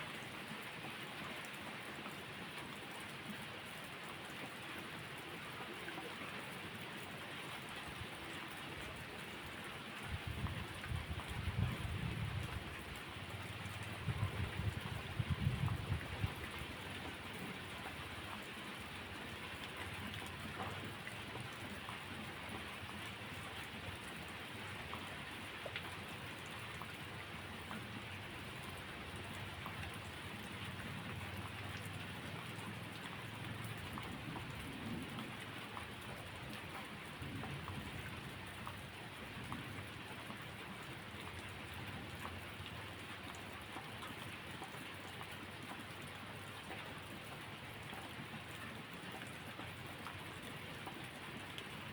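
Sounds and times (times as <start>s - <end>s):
steady rain hiss: 0.0s - 51.9s
raindrop ticks: 10.8s - 23.2s, 23.9s - 51.9s.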